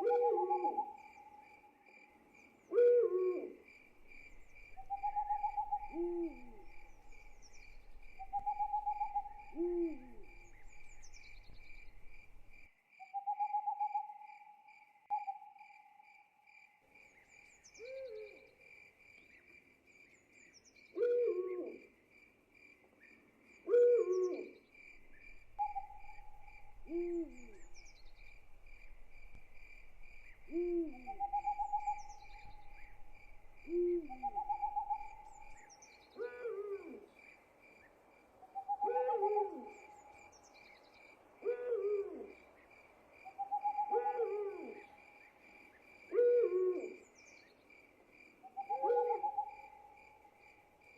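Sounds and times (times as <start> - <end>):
owls hooting: 0.0 - 1.2, 4.2 - 12.4, 25.1 - 35.6, 38.6 - 39.8, 43.4 - 44.9, 48.6 - 49.5
crickets chirping: 0.0 - 50.9.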